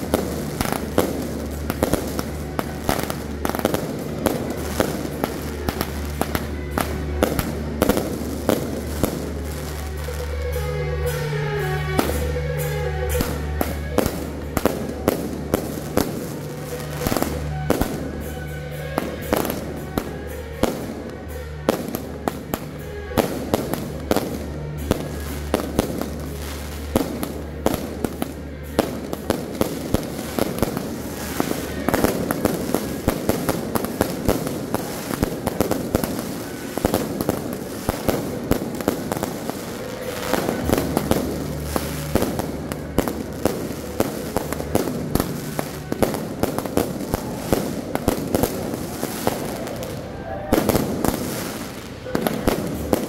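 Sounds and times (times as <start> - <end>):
aerial fireworks bangs and crackles: 0.0 - 53.0.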